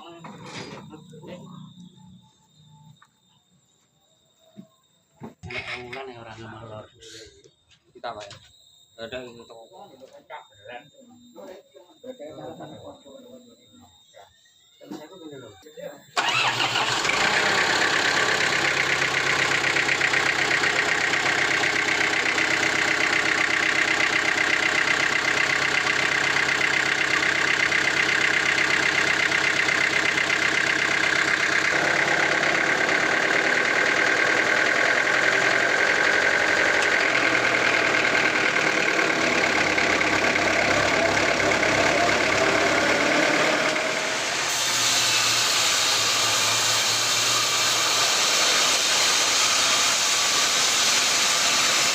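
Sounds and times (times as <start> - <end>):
sawmill machinery droning: 16.1 - 51.9.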